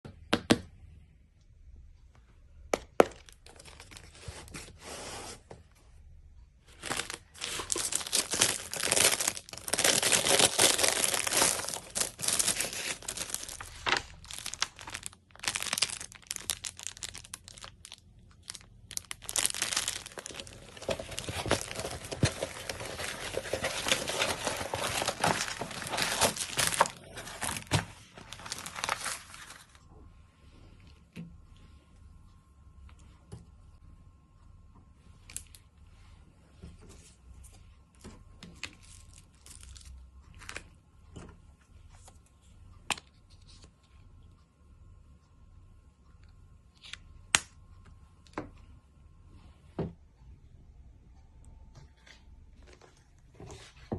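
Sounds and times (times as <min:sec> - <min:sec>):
packaging crinkling and tearing: 0:06.7 - 0:29.8, 0:38.5 - 0:40.7.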